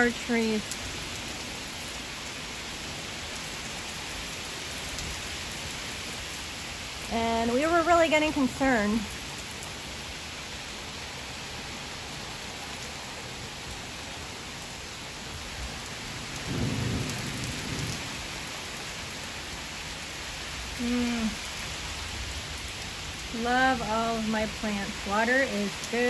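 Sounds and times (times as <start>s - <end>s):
heavy rain falling: 0.0s - 26.0s
thunder rumble: 16.2s - 18.5s.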